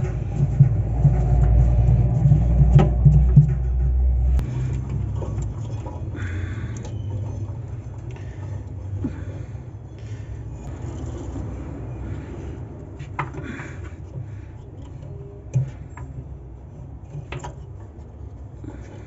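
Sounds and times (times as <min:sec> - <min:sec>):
machine rumble with pulsing hum: 0:00.0 - 0:19.0.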